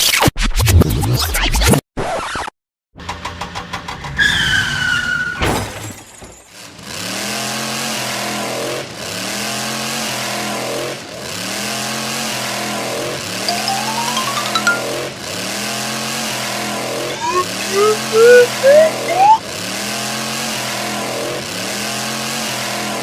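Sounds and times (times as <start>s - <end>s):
car engine revving effect: 16.4s - 19.8s
cartoon crash: 17.1s - 19.4s
falling whistle: 17.1s - 19.4s
rising whistle: 17.1s - 19.4s.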